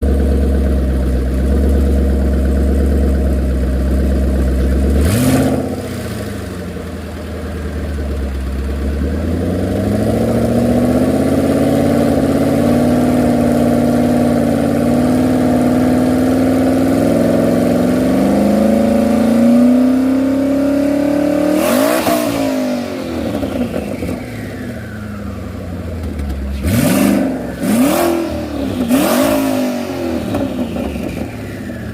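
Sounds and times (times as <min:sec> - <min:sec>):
car engine revving: 0:01.4 - 0:07.5, 0:08.8 - 0:31.9
sharp rush of noise: 0:26.6 - 0:31.9.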